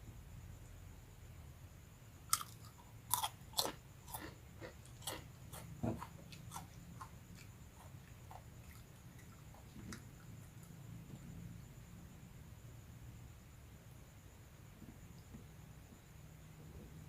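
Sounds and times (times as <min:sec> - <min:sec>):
crunchy crackers being chewed: 0:02.3 - 0:10.3.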